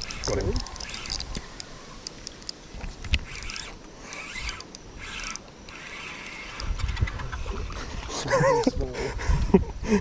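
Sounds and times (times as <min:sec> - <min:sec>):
fishing reel winding: 0:00.0 - 0:01.4, 0:02.0 - 0:07.4
reel clicks: 0:00.0 - 0:07.8.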